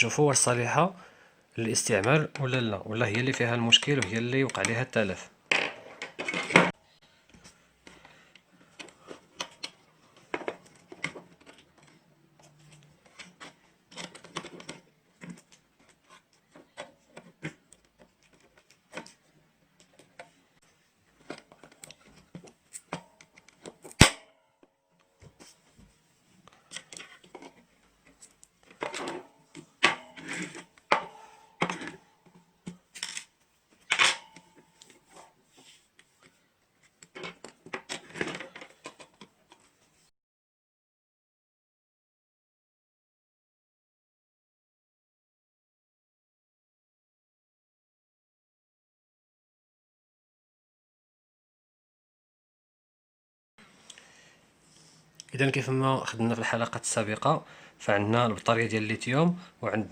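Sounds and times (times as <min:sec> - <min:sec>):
tools and parts clattering: 0:05.5 - 0:06.8, 0:07.9 - 0:19.2, 0:26.6 - 0:35.4, 0:37.0 - 0:39.8.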